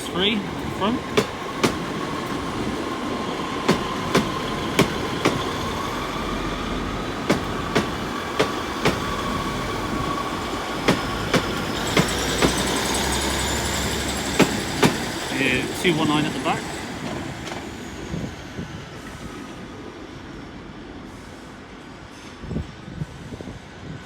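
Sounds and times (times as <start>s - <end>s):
train wheels clicking over rail joints: 0.0s - 17.8s
train running hum: 0.0s - 24.0s.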